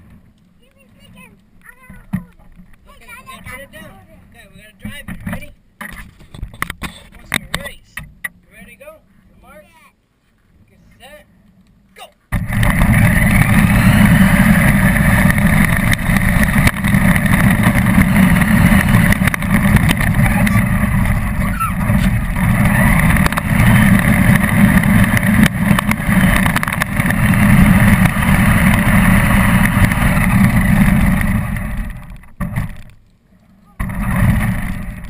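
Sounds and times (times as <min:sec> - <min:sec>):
radio-controlled car rumbling: 0:12.3 - 0:35.0.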